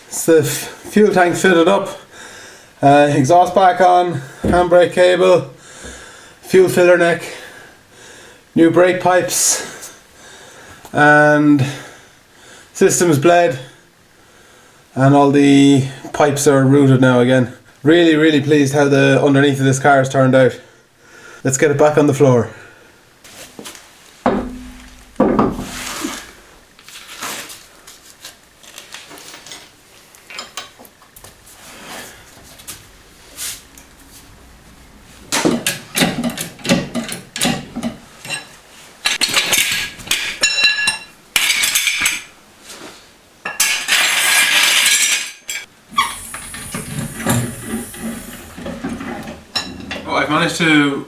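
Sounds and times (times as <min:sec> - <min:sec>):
metal scraping: 0:24.3 - 0:26.6, 0:45.9 - 0:49.4.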